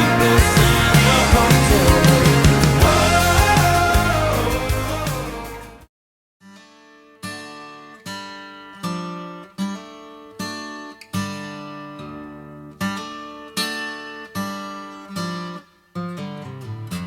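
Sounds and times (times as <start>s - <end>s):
acoustic guitar strumming chords: 0.0s - 5.9s.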